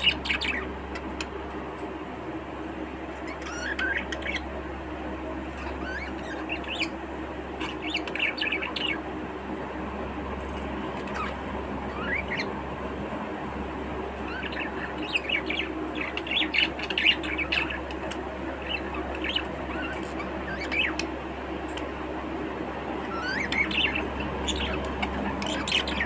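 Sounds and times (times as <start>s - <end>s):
budgerigars chirping: 0.0s - 1.3s, 3.2s - 4.5s, 5.5s - 7.0s, 7.6s - 9.0s, 11.0s - 12.5s, 14.2s - 21.1s, 23.0s - 26.0s
steady low hum: 0.0s - 26.0s.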